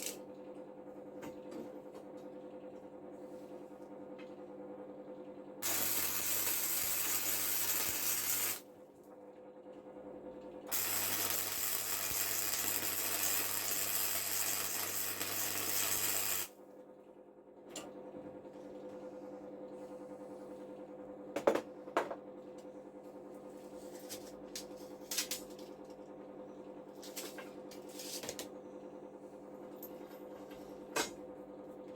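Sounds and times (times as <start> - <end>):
power tool hissing on steel: 5.6 - 8.6, 10.7 - 16.5.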